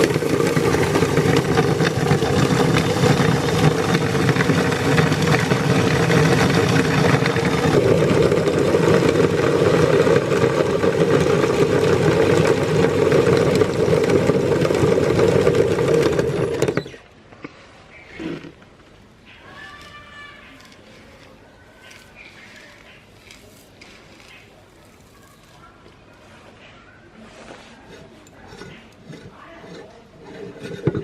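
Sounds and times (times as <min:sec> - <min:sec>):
electric meat grinder running: 0:00.0 - 0:17.0
plastic beads being ground: 0:00.0 - 0:17.0, 0:19.5 - 0:26.2, 0:27.2 - 0:31.0.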